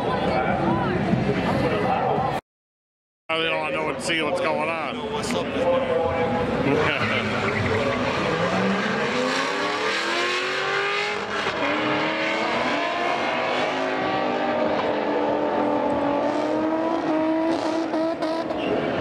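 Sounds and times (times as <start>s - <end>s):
car engines revving: 5.2s - 19.0s.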